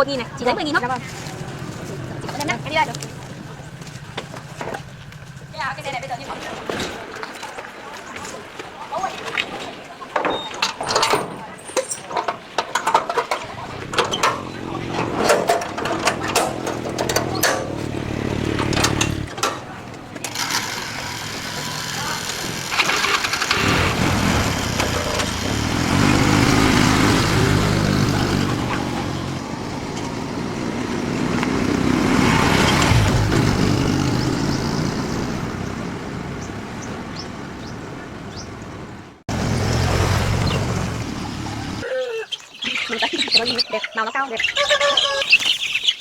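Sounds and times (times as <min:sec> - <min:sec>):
vehicle engine running: 0:00.0 - 0:06.3, 0:13.5 - 0:41.8.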